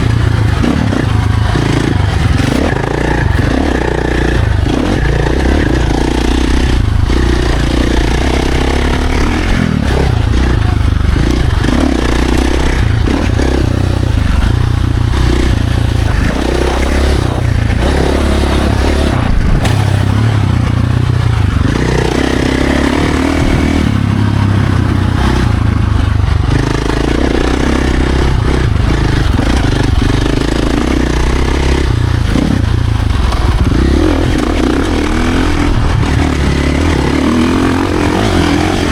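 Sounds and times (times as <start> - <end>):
dirt bike engine revving: 0.0 - 38.9
rough bike and terrain noise: 0.0 - 38.9.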